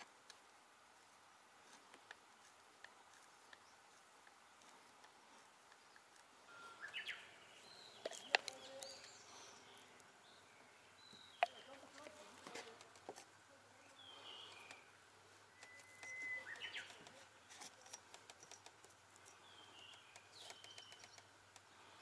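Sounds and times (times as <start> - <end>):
bird chirping: 3.3 - 12.0, 13.7 - 21.9
plywood pieces clicking: 15.6 - 21.7.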